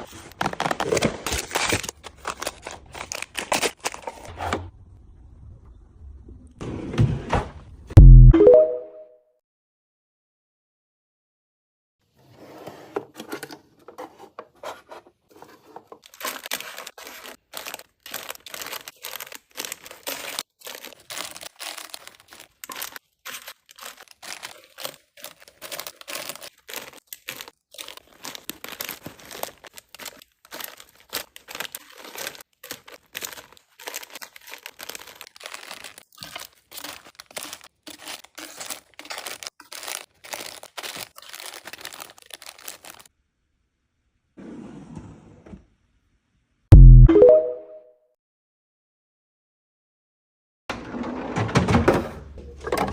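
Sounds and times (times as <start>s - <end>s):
plastic packaging crinkling: 0.1s - 4.3s, 15.4s - 43.1s.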